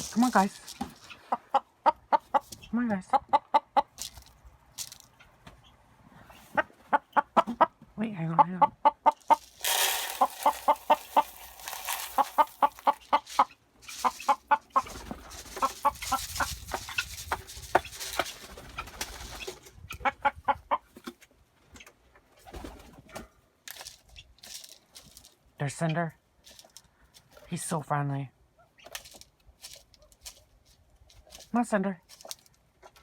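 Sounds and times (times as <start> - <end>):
chickens clucking: 0.0 - 23.3.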